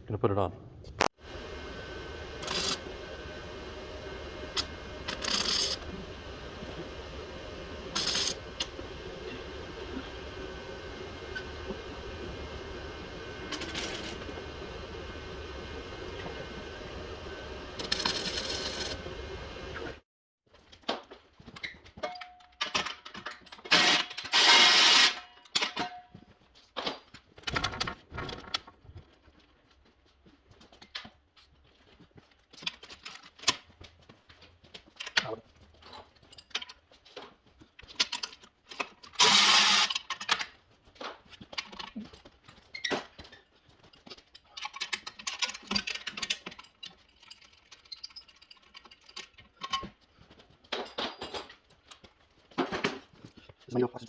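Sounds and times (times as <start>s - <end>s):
welder crackling hiss: 1.3s - 20.0s, 39.2s - 39.9s.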